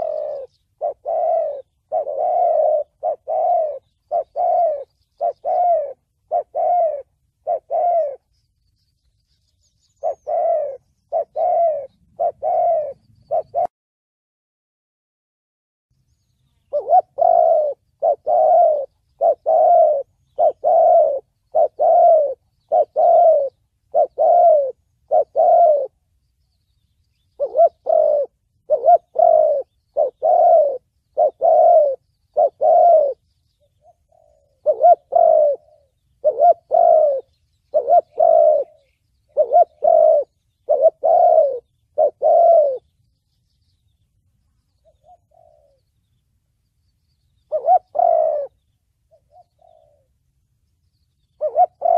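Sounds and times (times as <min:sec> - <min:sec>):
dove cooing: 0:00.0 - 0:08.3, 0:09.8 - 0:13.7, 0:16.6 - 0:26.1, 0:27.1 - 0:42.9, 0:44.8 - 0:46.2, 0:47.4 - 0:50.2, 0:51.2 - 0:51.9.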